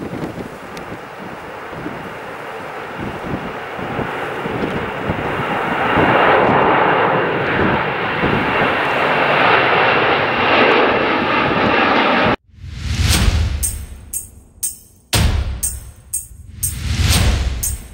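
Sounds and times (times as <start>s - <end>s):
jet engines roaring: 0.0s - 12.4s.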